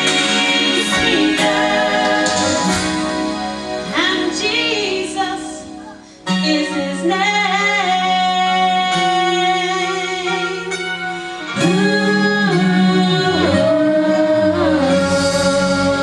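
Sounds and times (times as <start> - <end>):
woman singing: 0.0 - 2.7, 3.9 - 10.9, 11.5 - 16.0
gospel group singing: 0.0 - 5.6, 11.5 - 16.0
instrumental accompaniment: 0.0 - 16.0.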